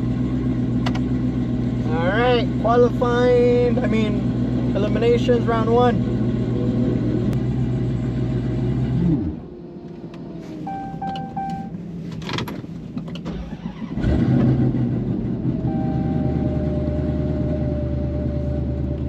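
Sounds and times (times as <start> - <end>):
car engine idling: 0.0 - 19.0
short beeps: 10.6 - 11.8, 15.7 - 16.4.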